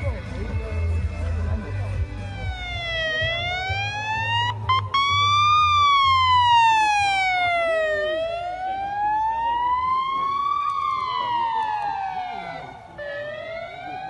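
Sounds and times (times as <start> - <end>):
siren wailing: 2.2 - 14.0.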